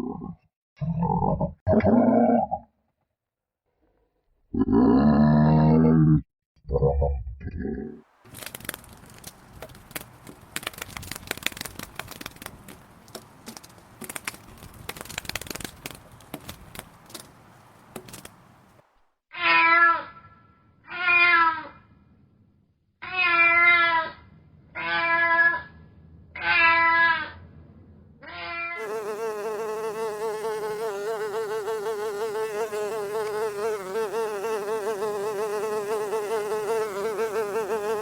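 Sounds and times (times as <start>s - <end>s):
rustling and crackling: 8.2s - 19.0s.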